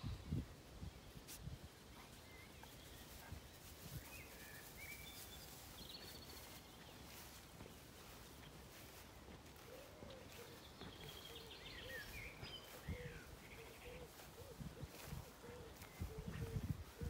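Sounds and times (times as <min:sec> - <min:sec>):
faint bird chirps: 0:02.0 - 0:07.4, 0:08.8 - 0:17.0.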